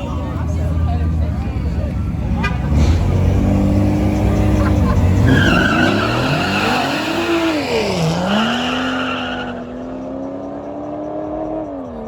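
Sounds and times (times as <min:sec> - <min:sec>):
car engine revving: 0:01.6 - 0:12.0
tires squealing: 0:02.3 - 0:10.6.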